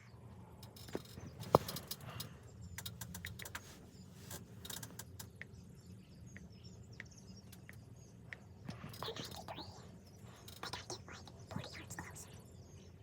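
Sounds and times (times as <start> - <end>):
small clicks and rustles: 0.6 - 5.6.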